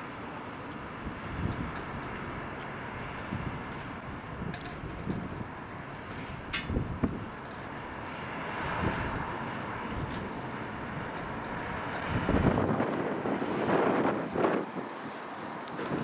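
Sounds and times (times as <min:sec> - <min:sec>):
distant traffic hum: 0:00.0 - 0:16.0
wind on microphone: 0:00.8 - 0:16.0.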